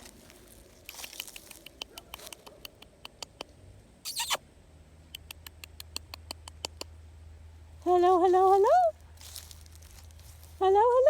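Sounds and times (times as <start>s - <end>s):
footsteps crunching dry grass: 0.0s - 2.5s, 7.8s - 11.0s.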